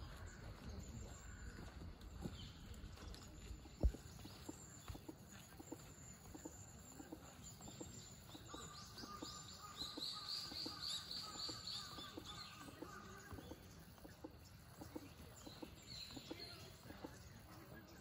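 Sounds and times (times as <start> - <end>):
faint outdoor background noise: 0.0 - 18.0.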